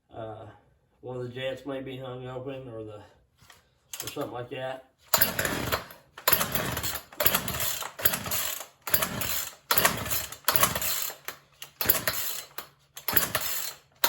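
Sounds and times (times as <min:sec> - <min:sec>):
chainsaw engine cranking: 0:03.9 - 0:04.3, 0:05.1 - 0:14.0
chainsaw recoil starter pulled: 0:03.9 - 0:04.3, 0:05.1 - 0:14.0.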